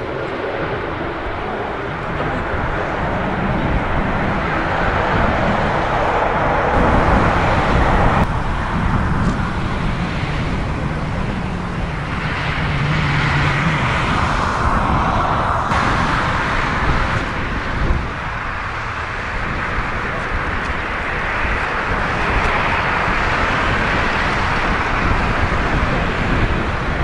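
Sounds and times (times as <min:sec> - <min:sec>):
jet engine rumble: 0:00.0 - 0:27.0
wind on microphone: 0:00.0 - 0:27.0.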